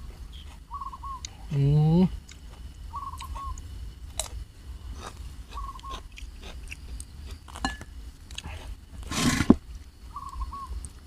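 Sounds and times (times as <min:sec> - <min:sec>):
bird warbling call: 0:00.7 - 0:01.2, 0:02.9 - 0:03.6, 0:10.1 - 0:10.8
person chewing food: 0:02.2 - 0:09.9.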